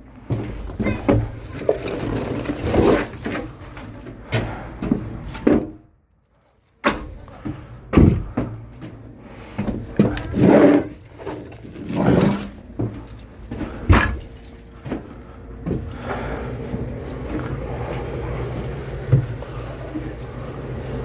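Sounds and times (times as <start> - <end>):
objects knocking and clunking: 0.2 - 5.9, 6.8 - 16.1.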